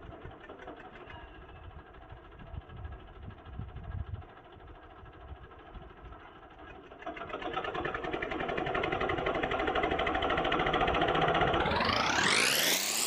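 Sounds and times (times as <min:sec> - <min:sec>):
tractor diesel engine running: 0:00.0 - 0:13.0
fast rising pitch sweep: 0:08.8 - 0:13.0.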